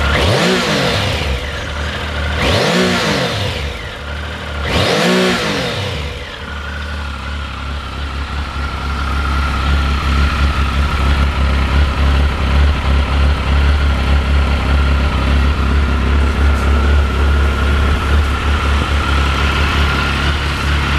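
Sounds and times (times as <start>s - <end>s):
motorcycle engine idling: 0.0s - 20.9s.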